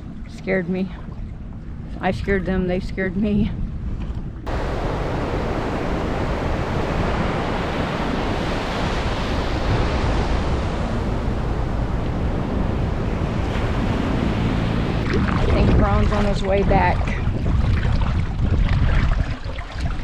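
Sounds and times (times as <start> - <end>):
wind buffeting microphone: 0.0 - 20.0
ocean surf washing onto beach: 4.5 - 17.5.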